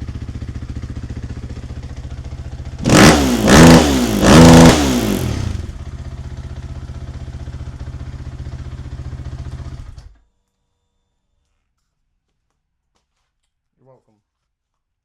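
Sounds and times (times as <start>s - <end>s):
motorcycle engine revving and idling: 0.0s - 10.2s.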